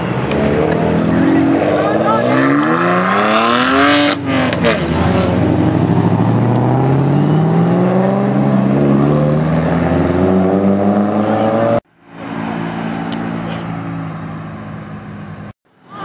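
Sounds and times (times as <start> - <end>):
car engine accelerating hard: 0.0 - 11.8.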